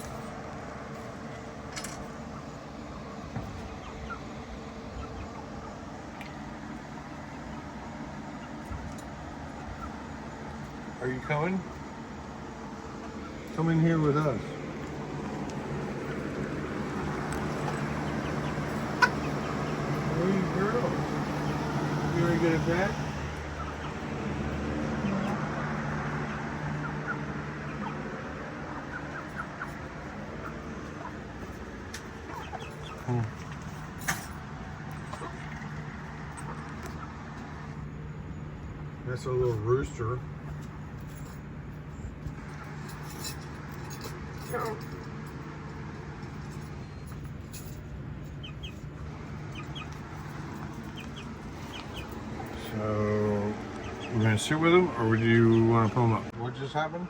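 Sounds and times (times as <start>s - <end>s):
steady low hum: 0.0s - 57.0s
chickens clucking: 2.0s - 10.9s, 14.5s - 37.7s, 48.3s - 56.3s.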